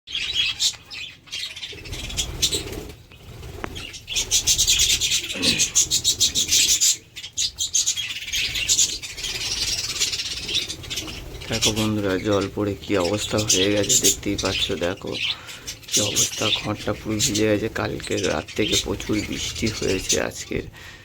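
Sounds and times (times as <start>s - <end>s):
pigeons cooing: 1.4s - 17.9s
pigeons flapping wings: 1.9s - 5.0s.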